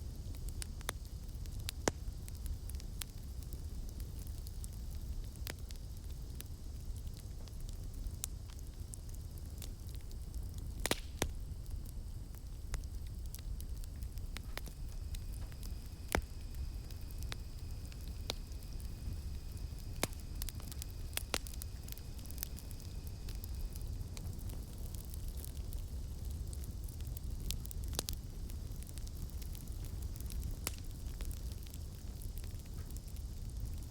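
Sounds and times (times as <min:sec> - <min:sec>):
campfire crackling and popping: 0:00.0 - 0:33.9
cicadas droning: 0:11.4 - 0:24.2.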